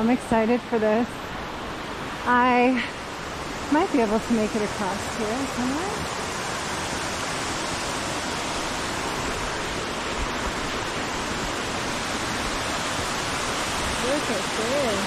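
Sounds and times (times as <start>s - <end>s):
waterfall and stream rushing: 0.0s - 15.0s.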